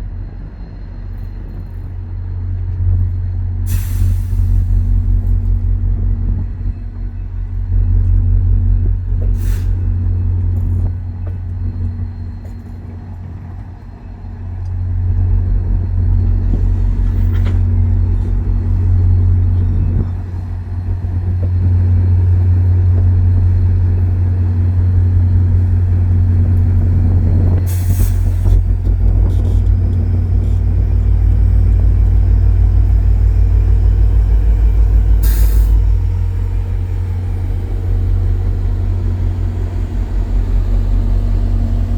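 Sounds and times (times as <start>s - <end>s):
diesel locomotive engine rumbling: 0.0s - 41.9s
air brake hisses: 3.7s - 4.7s, 9.4s - 9.8s, 35.2s - 35.8s.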